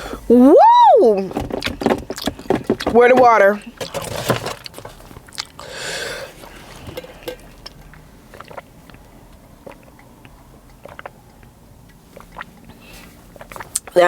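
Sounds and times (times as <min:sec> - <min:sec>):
breathy huff of air: 0:00.0 - 0:00.4, 0:05.6 - 0:07.4
soft chewing: 0:03.8 - 0:14.0.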